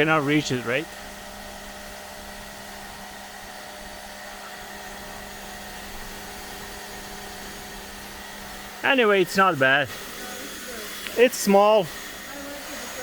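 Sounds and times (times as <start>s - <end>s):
water spray hissing: 0.0s - 1.0s, 4.5s - 13.0s
pressure washer motor hum: 0.0s - 13.0s.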